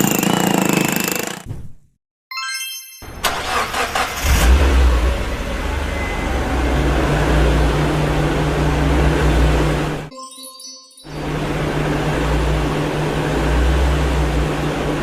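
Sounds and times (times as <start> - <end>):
car engine starting and revving: 3.1 - 10.1, 11.2 - 15.0.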